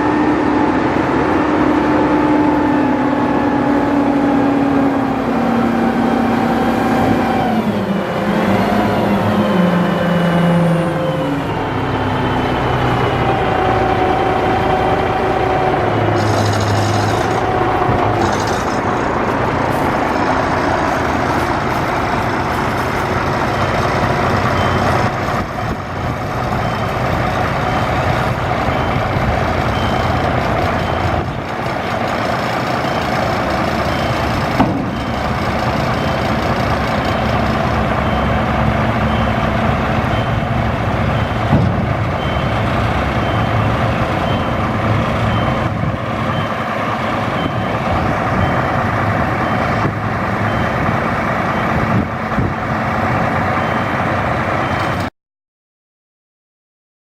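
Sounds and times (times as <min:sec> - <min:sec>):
diesel truck engine running: 0:00.0 - 0:55.1
reversing beeper: 0:08.6 - 0:51.8, 0:53.5 - 0:55.0.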